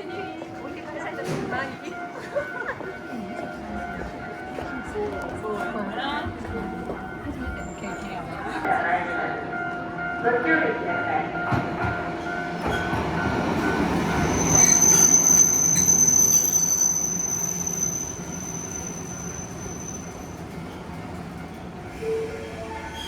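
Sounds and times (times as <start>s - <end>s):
tram rumble: 0.0s - 23.0s
tram wheel squeal: 11.5s - 23.0s.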